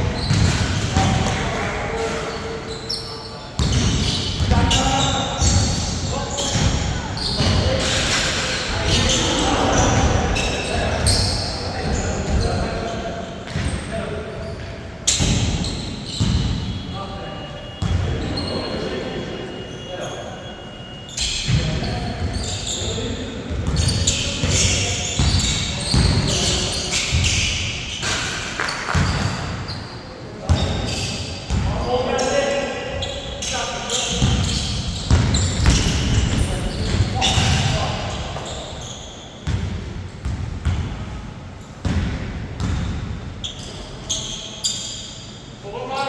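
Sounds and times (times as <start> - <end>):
basketball bouncing on court: 0.2 - 1.5, 3.6 - 7.6, 15.1 - 16.7, 28.9 - 29.5, 30.5 - 31.8, 34.1 - 37.8, 39.4 - 41.2, 41.8 - 43.2.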